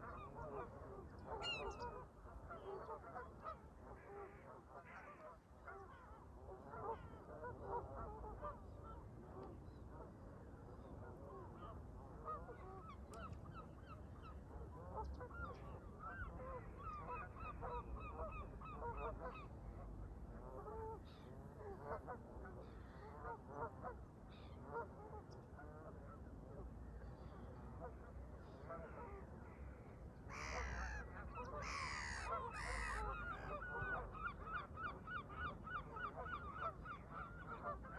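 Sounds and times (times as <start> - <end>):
geese honking: 30.4 - 37.9.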